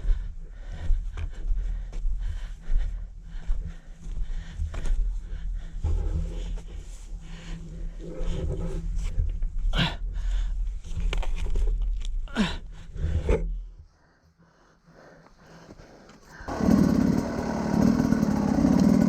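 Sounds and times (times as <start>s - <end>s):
motorcycle engine running: 16.4s - 19.0s
short high falling cry: 16.6s - 19.0s.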